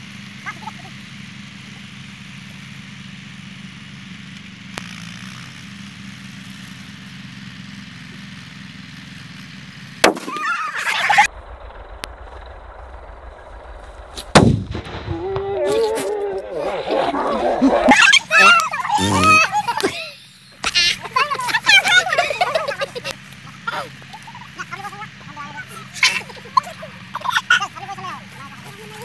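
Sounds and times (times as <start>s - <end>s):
firecracker crackling: 0.1s - 17.0s, 17.9s - 29.0s
firecracker bangs: 11.3s - 15.8s.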